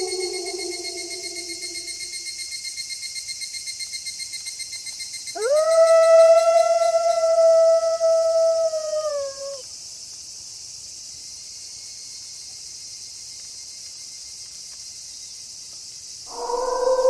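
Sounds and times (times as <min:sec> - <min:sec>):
wolf howling: 0:00.0 - 0:02.2, 0:05.4 - 0:09.6, 0:16.3 - 0:17.0
steady high hiss: 0:00.0 - 0:02.3.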